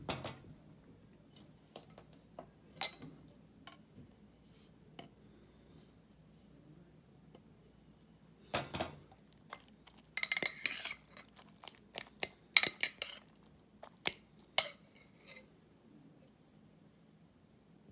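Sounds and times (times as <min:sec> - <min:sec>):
metal utensil clinking on dish: 0:09.5 - 0:15.4.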